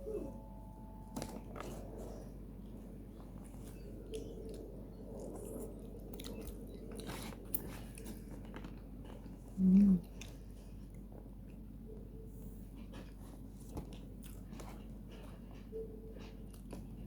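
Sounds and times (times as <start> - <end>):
low hum: 0.0 - 12.9
person chewing rice: 1.2 - 11.7, 12.6 - 17.0.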